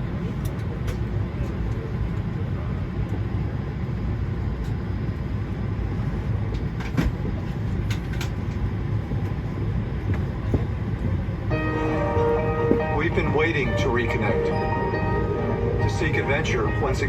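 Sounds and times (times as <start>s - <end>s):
airplane cabin rumble: 0.0s - 17.0s.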